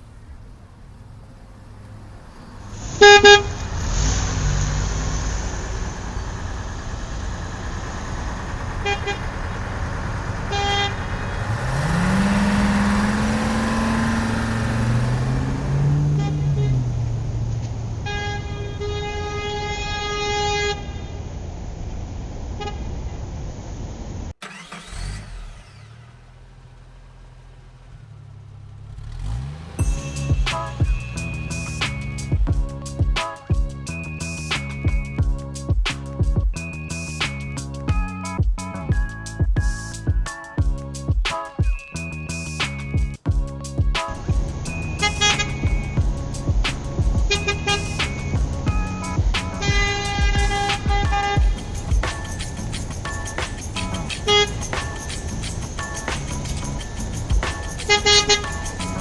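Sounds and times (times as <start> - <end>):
truck engine rumble: 0.0 - 21.8, 24.2 - 41.0, 41.9 - 59.0
truck horn honking: 2.9 - 3.7, 10.5 - 20.9, 24.4 - 34.8, 44.0 - 59.0.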